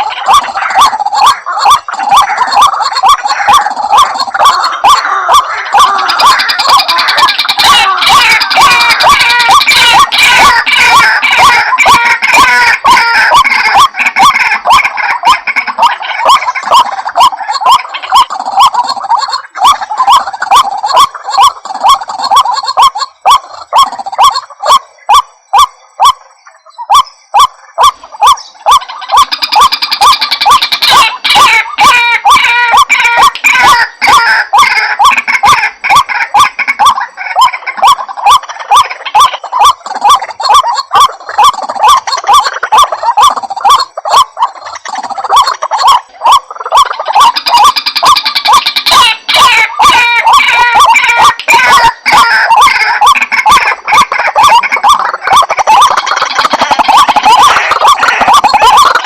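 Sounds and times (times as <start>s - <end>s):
waterhen calls: 0.0s - 59.0s.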